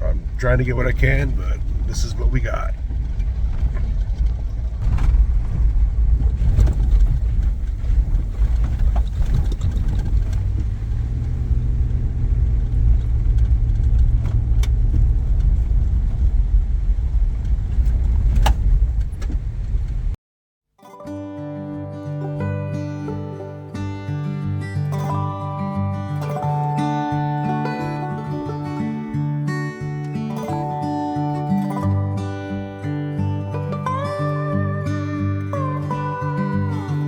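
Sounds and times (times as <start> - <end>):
truck on gravel road: 0.0 - 20.2
knocks and rattles: 1.2 - 20.2
music: 20.8 - 37.0.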